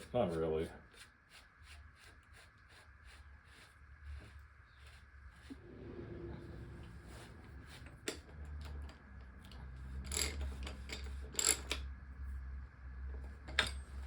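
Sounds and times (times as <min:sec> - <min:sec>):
steady low hum: 0:00.0 - 0:14.0
tools rattling and scraping: 0:09.5 - 0:12.0, 0:13.2 - 0:14.0.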